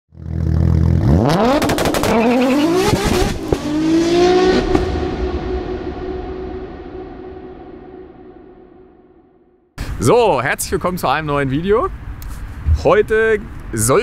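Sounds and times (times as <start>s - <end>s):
car engine revving: 0.2s - 9.1s.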